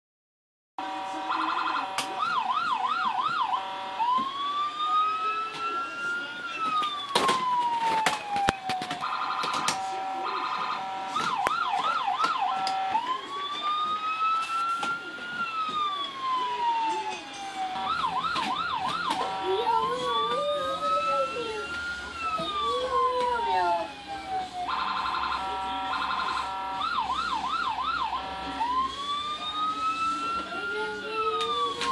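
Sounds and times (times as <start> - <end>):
toy police siren: 0.8 - 31.9.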